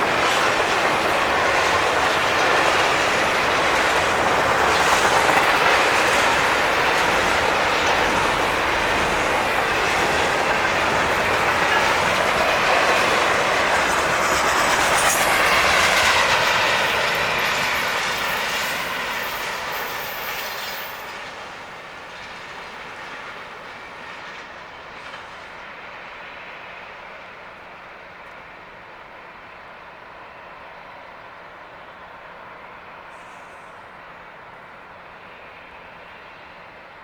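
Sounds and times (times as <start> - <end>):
train wheels clacking over rail joints: 0.0 - 24.4
train wheels squealing: 0.0 - 37.0.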